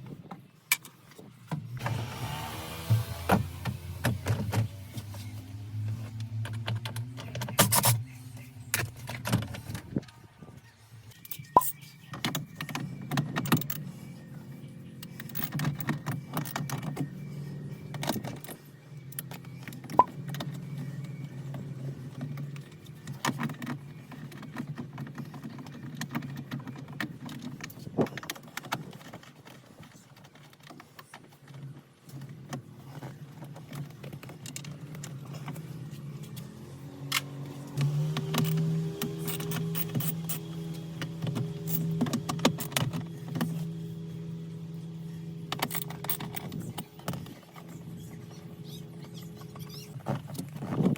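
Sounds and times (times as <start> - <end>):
plastic parts clicking and rattling: 15.0 - 17.2, 17.9 - 36.5, 37.1 - 43.7, 45.4 - 50.9.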